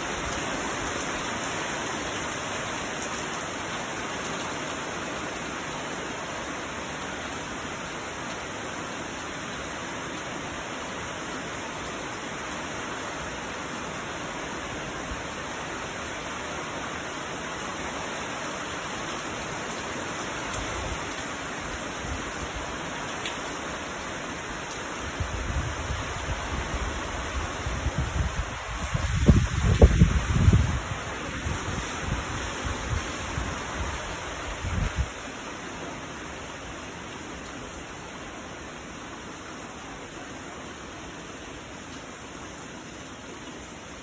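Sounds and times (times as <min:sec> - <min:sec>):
heavy rain pouring: 0:00.0 - 0:44.0
wind gusts rumbling: 0:25.2 - 0:35.1.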